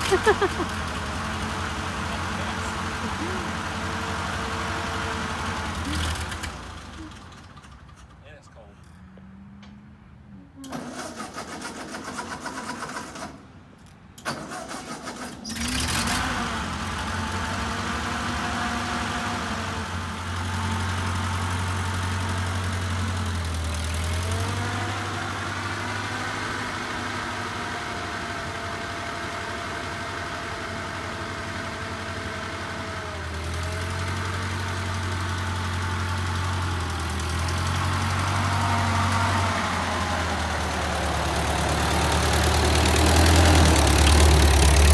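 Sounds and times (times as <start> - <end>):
engine starter cranking: 0.0 - 1.6, 10.6 - 13.5, 14.2 - 16.4
engine idling: 0.0 - 8.3, 15.6 - 44.9.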